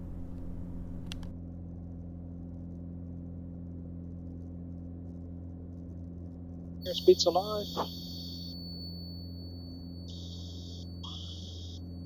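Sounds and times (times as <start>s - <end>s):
aircraft engine droning: 0.0s - 1.3s, 6.9s - 12.0s.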